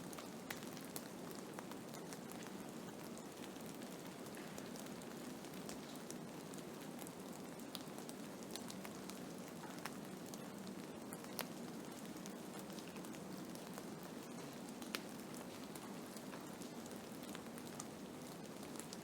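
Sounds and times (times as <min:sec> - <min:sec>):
small ticks and crackles: 0:00.1 - 0:19.0.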